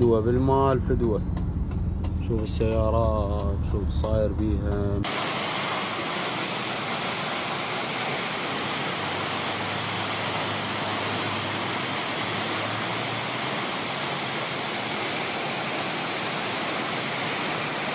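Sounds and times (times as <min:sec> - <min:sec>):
floodwater rushing: 0:05.0 - 0:17.9.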